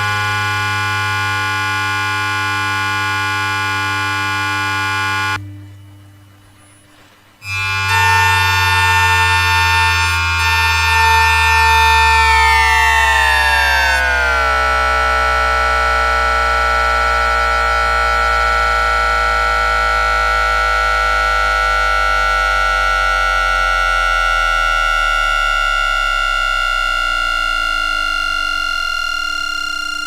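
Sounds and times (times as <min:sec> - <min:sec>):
electronic inverter whine: 0:00.0 - 0:30.0
low hum: 0:00.0 - 0:30.0
gliding cluster of tones: 0:02.1 - 0:20.5, 0:25.2 - 0:30.0.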